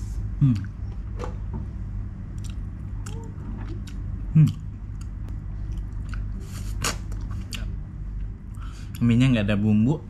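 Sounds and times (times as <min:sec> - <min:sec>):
person chewing: 0:02.3 - 0:09.0
mouth clicks and smacks: 0:02.4 - 0:07.7.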